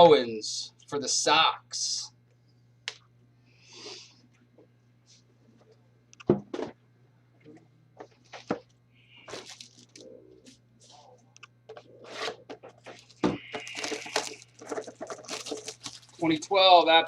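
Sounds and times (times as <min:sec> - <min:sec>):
wrappers crinkling and tearing: 0:09.2 - 0:10.1, 0:12.0 - 0:16.5
clicks and rustles: 0:11.4 - 0:16.2.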